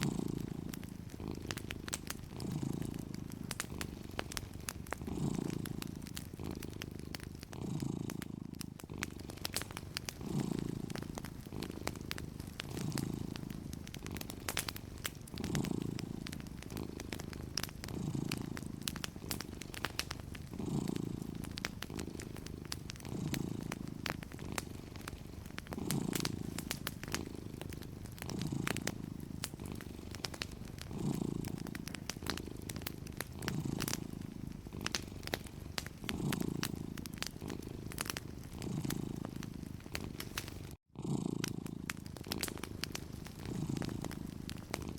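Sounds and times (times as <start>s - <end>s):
cat purring: 0.0s - 44.9s
wood fire crackling: 0.0s - 44.9s.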